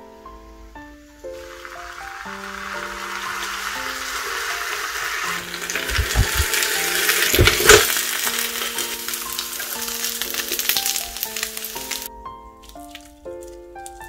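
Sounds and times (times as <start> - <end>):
background music: 0.0 - 14.0
burger sizzling: 1.2 - 14.0
appliance knocks: 5.9 - 7.9.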